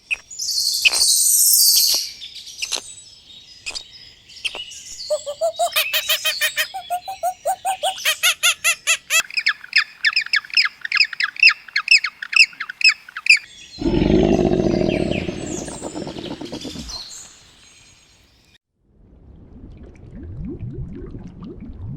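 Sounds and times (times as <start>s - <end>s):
birds calling: 5.0s - 17.4s.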